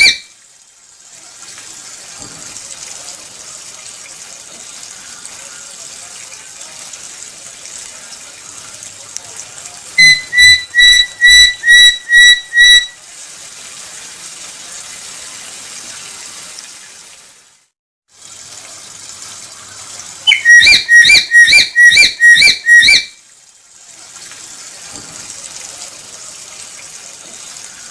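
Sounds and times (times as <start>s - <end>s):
parrot whistled calls: 0.0s - 0.3s, 10.0s - 13.0s, 20.3s - 23.2s.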